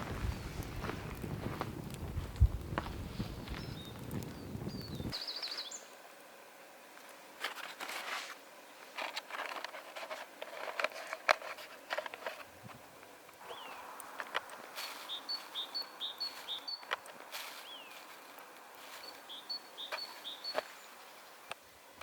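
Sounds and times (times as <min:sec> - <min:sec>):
bird twitter: 0:03.5 - 0:05.9, 0:13.4 - 0:14.0, 0:14.8 - 0:18.1, 0:18.9 - 0:21.0
rustling on forest floor: 0:06.9 - 0:22.0.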